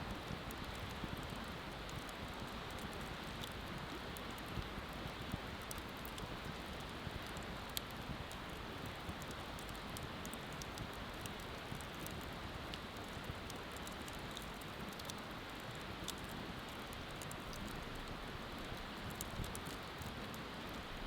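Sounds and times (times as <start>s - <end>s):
bonfire crackling and popping: 0.0s - 21.0s.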